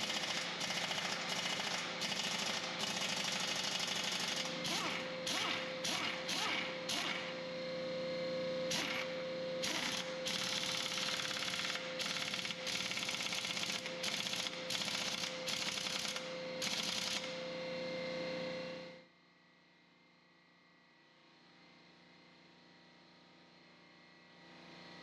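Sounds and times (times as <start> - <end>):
impact wrench rattling bursts: 0.0 - 7.3, 8.7 - 17.4
steady hum: 0.0 - 19.0.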